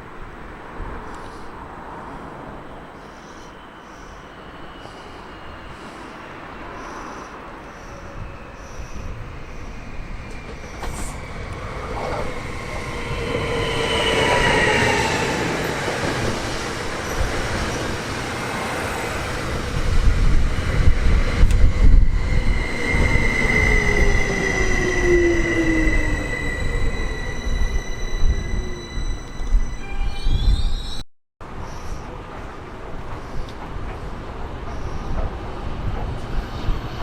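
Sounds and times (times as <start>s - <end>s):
train passing: 0.2s - 30.1s
heavy rumble of train cars: 4.6s - 37.0s
high wheel squeal: 21.7s - 31.0s.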